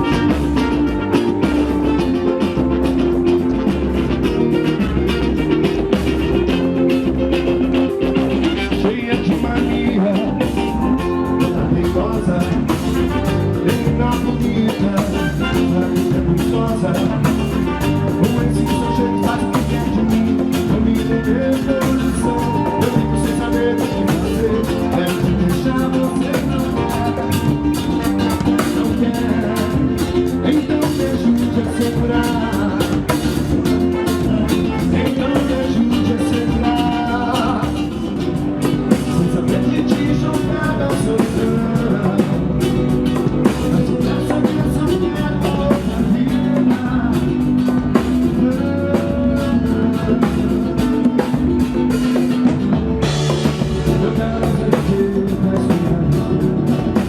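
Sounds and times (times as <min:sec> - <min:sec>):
live band dance music: 0:00.0 - 0:57.0.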